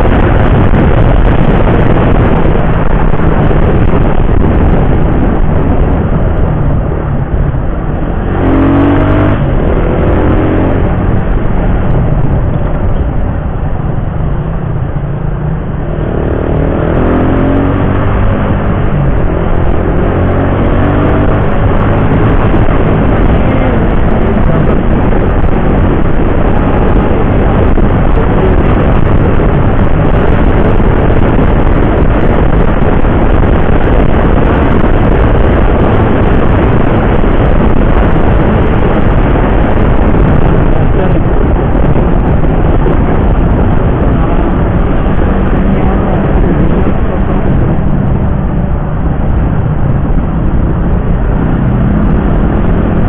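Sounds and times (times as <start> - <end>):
motorcycle road noise: 0.0 - 53.0
wind rushing over microphone: 0.0 - 53.0.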